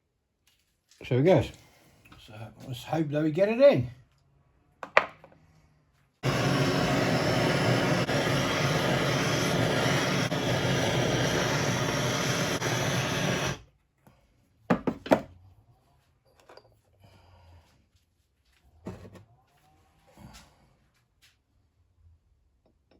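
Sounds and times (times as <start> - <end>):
rushing hiss of gas jet: 6.2 - 13.6.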